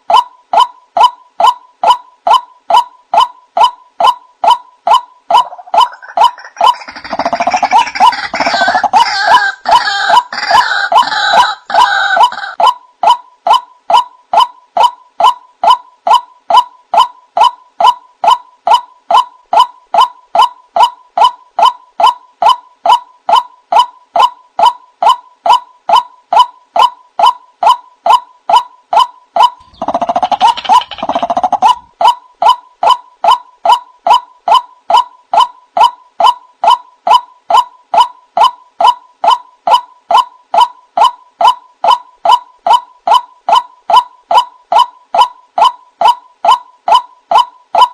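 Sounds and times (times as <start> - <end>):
harsh croaking bird calls: 4.0 - 16.2, 26.8 - 33.5.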